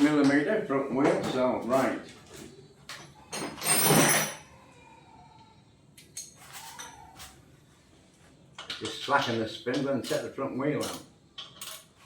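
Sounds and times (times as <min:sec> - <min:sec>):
metal tools clinking: 0:02.9 - 0:04.5, 0:06.0 - 0:07.4, 0:08.6 - 0:12.0.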